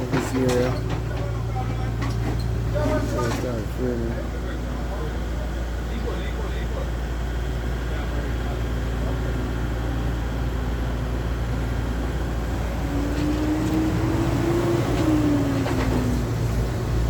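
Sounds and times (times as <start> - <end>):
vehicle engine passing by: 11.8 - 17.0.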